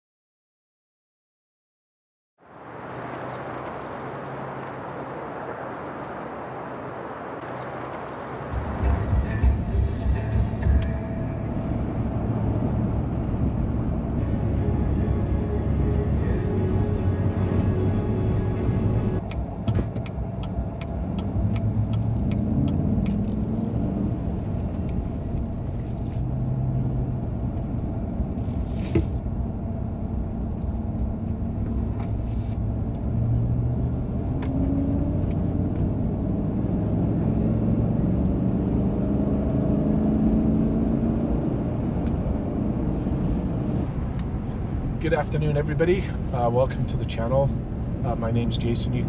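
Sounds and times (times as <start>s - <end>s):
truck engine and road rumble: 2.4s - 49.0s
light ticks: 19.2s - 23.3s.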